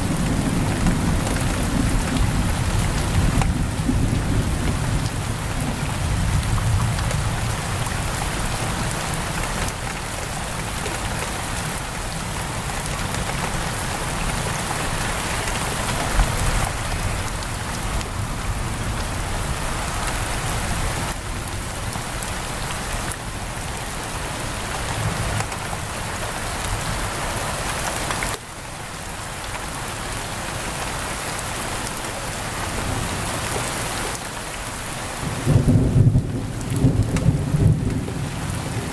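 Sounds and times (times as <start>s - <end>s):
heavy rain on a window: 0.0s - 38.9s
distant thunder rumble: 35.2s - 38.9s.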